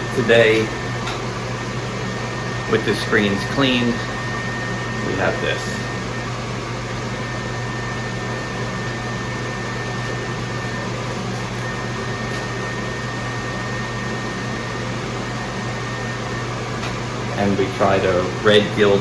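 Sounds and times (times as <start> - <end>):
fan unit humming: 0.0 - 19.0
thin high whine: 0.0 - 19.0.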